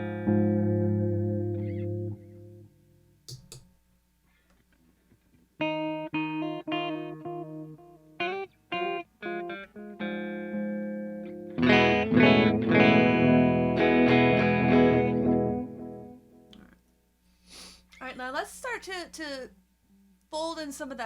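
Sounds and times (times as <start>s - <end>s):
electric guitar with delay: 0.0s - 2.7s, 5.6s - 16.5s.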